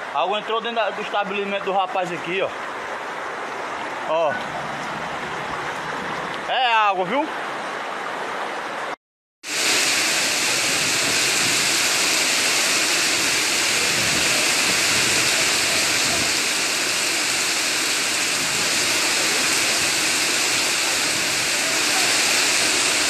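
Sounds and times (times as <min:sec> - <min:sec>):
heavy rain on cobblestones: 0:09.5 - 0:23.0.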